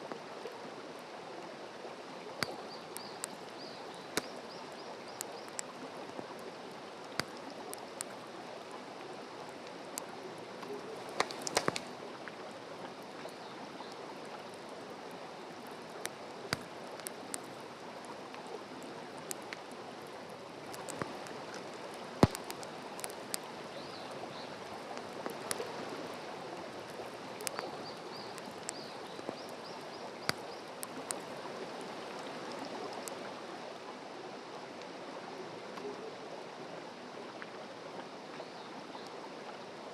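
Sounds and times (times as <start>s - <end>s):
crackles and pops of burning wood: 2.3s - 8.3s, 9.5s - 12.4s, 15.6s - 31.4s
wood fire hissing: 11.0s - 11.9s.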